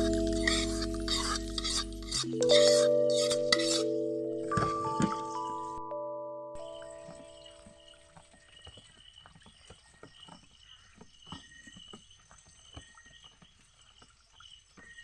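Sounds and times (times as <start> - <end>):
high thin drone: 0.0 - 4.6.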